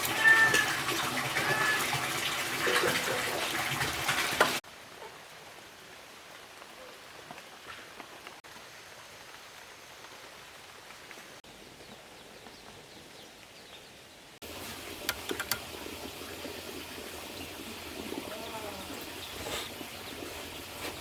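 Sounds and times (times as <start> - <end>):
water splashing and pattering: 0.0 - 4.6, 14.4 - 21.0
small drips and ticks: 14.5 - 21.0.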